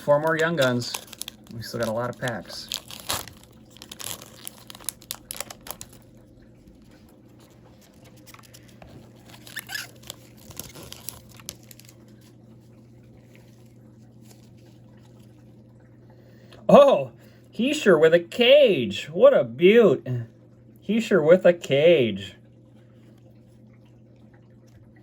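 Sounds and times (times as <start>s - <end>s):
cards being handled: 0.0s - 6.0s, 7.4s - 12.0s
wrapper crinkling and tearing: 0.0s - 6.2s, 6.9s - 12.2s
faint steady hum: 0.0s - 25.0s.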